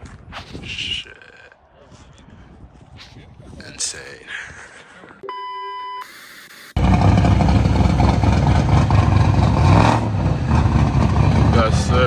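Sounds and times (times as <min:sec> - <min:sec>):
short electronic beep: 0:05.2 - 0:06.1
car engine starting and running: 0:06.8 - 0:12.0.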